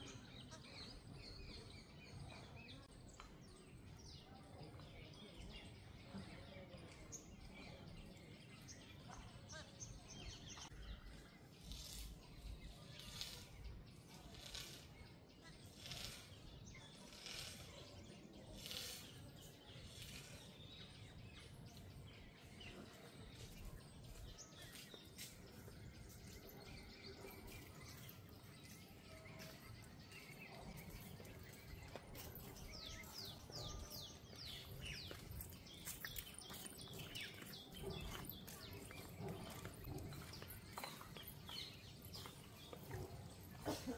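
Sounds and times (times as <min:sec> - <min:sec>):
small birds chirping: 0:00.0 - 0:43.9.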